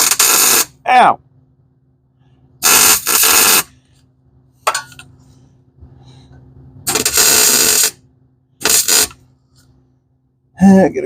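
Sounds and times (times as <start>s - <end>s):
welding arc bursts: 0.0s - 0.8s, 2.6s - 3.7s, 6.8s - 8.0s, 8.6s - 9.2s
steady low hum: 0.0s - 11.0s.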